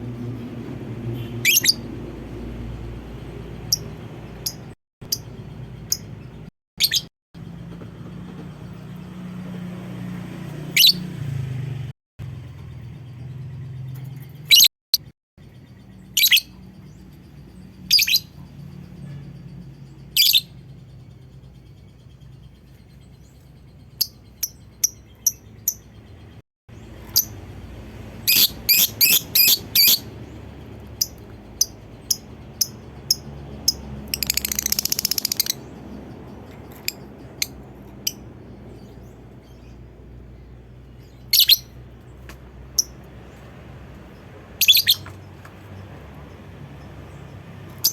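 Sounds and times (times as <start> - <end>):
bird high-pitched calls: 1.2 - 1.9, 6.8 - 7.1, 10.8 - 11.0, 14.4 - 14.7, 16.0 - 17.0, 17.8 - 19.3, 20.1 - 20.7, 28.3 - 30.1, 41.0 - 41.8, 44.6 - 45.2
bird chattering trill: 31.0 - 35.7, 41.3 - 41.7, 44.6 - 45.1.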